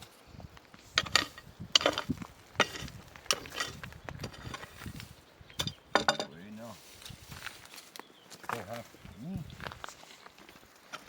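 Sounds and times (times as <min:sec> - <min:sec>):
objects knocking and scraping: 0:00.8 - 0:06.4.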